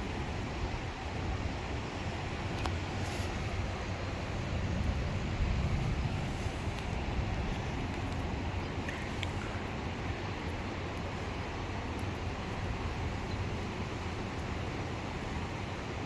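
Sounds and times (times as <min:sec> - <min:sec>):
steady outdoor hiss: 0:00.0 - 0:16.0
wind buffeting microphone: 0:00.2 - 0:10.9.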